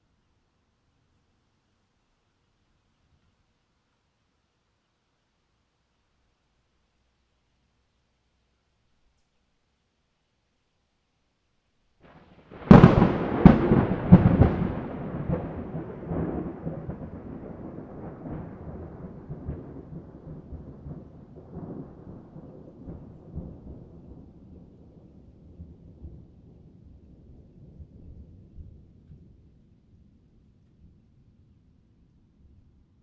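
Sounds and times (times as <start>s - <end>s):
thunder cracking and rumbling: 12.1s - 29.6s.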